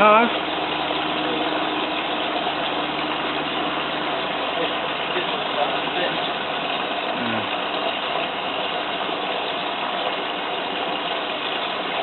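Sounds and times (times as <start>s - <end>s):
water rushing into washing machine: 0.0s - 12.0s.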